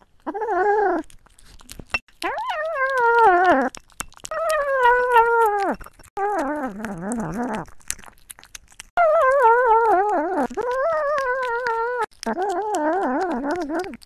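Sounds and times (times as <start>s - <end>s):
dog howling whines: 4.3s - 6.8s, 9.0s - 14.0s.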